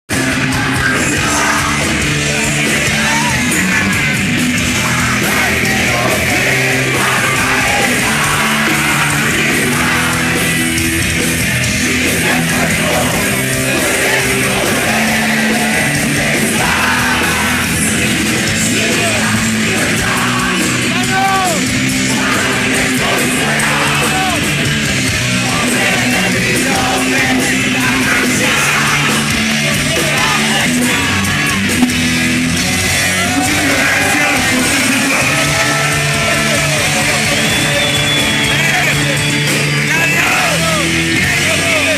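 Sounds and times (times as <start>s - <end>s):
heavy metal music: 0.1s - 41.9s
yelled vocals: 0.1s - 41.9s.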